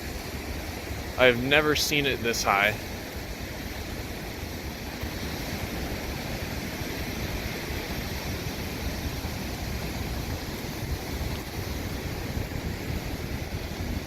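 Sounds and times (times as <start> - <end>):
rushing floodwater roar: 0.0 - 14.0
wind on microphone: 2.8 - 14.0.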